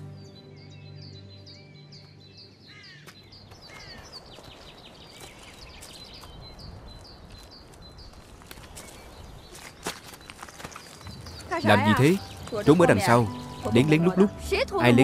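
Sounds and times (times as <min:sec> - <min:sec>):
lower sweeping bird calls: 0:00.0 - 0:14.4
high bird chirps: 0:08.8 - 0:15.0
soft background music: 0:11.5 - 0:15.0.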